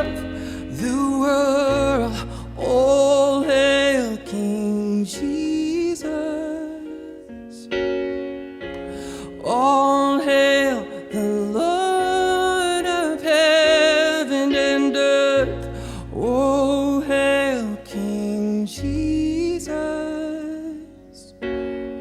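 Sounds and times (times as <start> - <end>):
person singing long notes: 0.0 - 7.8
sustained keyboard chords: 0.0 - 22.0.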